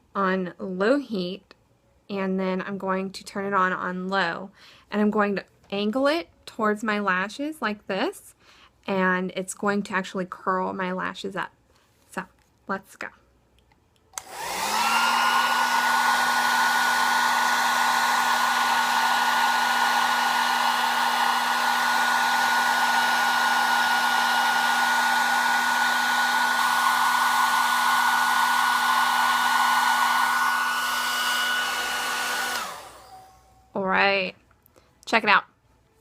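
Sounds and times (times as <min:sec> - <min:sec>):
hair dryer running: 0:14.2 - 0:33.7.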